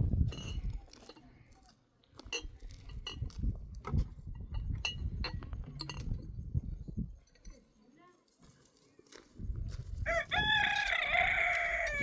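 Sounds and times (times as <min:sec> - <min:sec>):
glass and dishware clinking: 0:02.3 - 0:03.3, 0:04.5 - 0:06.2.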